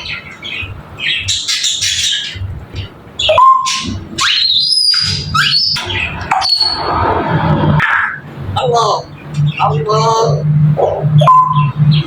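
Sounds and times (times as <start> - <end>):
parrot whistling: 3.2 - 6.9, 7.8 - 12.0
parrot squawking: 3.2 - 7.0, 7.8 - 12.0.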